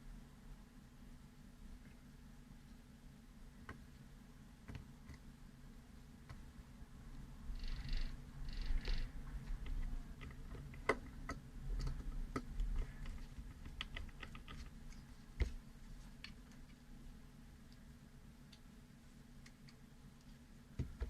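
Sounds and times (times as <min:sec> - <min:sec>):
soft rustle: 0:14.4 - 0:17.9.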